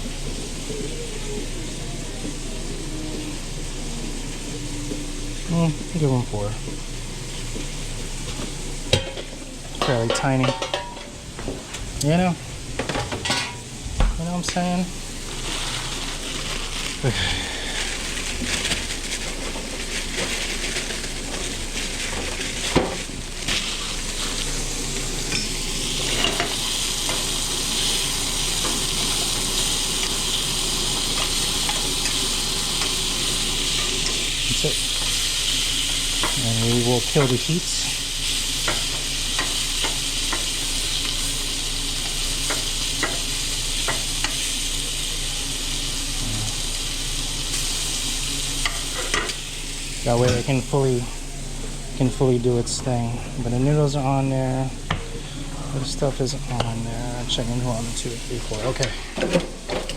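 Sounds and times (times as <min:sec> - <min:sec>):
food sizzling in a pan: 0:00.0 - 0:59.8
utensils stirring and clinking: 0:08.3 - 0:11.2, 0:12.0 - 0:17.0, 0:18.0 - 0:44.6, 0:48.6 - 0:49.4, 0:56.0 - 0:59.9.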